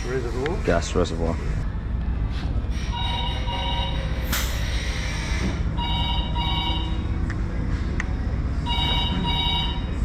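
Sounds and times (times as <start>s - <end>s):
steady low hum: 0.0s - 10.0s
telephone ringing: 5.8s - 7.0s, 8.7s - 10.0s.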